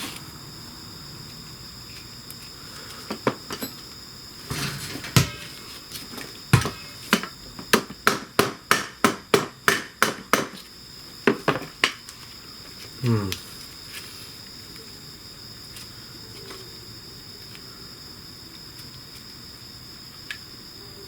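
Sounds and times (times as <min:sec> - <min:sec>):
hammer blows: 0:04.5 - 0:05.7.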